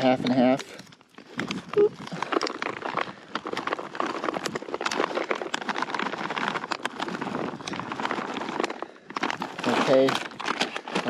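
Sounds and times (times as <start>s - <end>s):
nuts pouring into a container: 2.2s - 11.0s.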